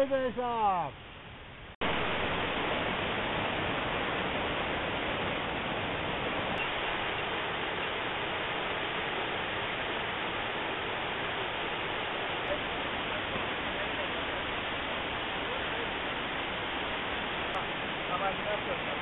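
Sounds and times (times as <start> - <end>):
waterfall rushing: 1.8 - 19.0.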